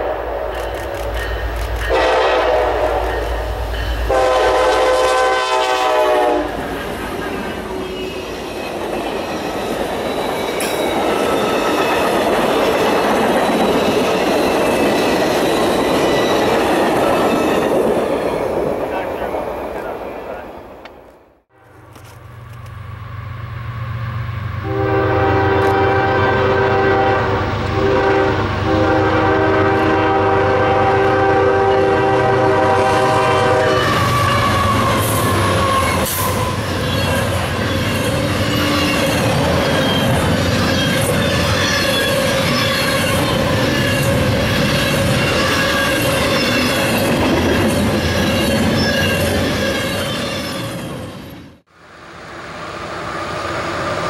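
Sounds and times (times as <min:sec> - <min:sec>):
locomotive horn blast: 0:01.8 - 0:06.7, 0:24.6 - 0:36.6.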